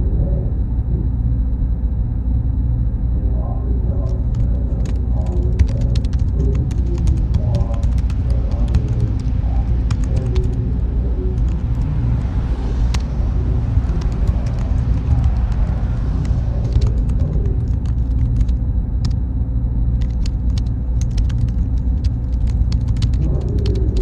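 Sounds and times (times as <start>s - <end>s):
computer fan drone: 0.0s - 24.0s
keyboard clicks: 4.0s - 10.6s, 13.8s - 19.2s, 20.0s - 24.0s.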